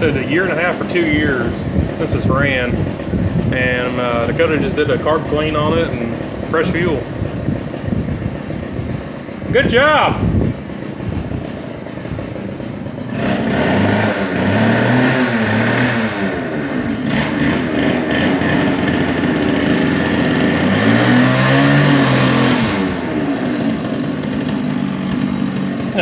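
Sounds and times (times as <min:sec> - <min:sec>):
two-stroke saw revving: 0:00.0 - 0:26.0.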